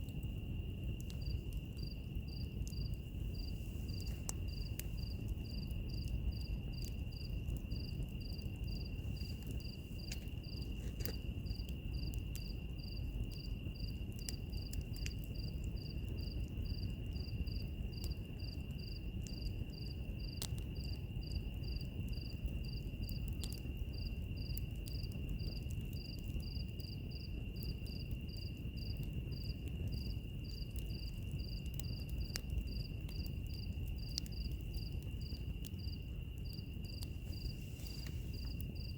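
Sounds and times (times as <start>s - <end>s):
crackling wood fire: 0.0s - 38.9s
insect chirping: 0.1s - 38.9s.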